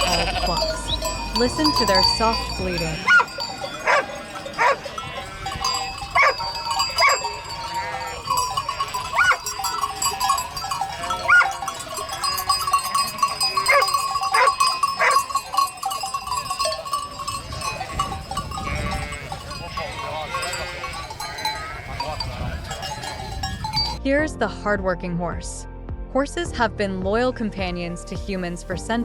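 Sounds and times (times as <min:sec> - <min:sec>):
sheep bleating: 0:00.0 - 0:15.9, 0:17.8 - 0:23.2.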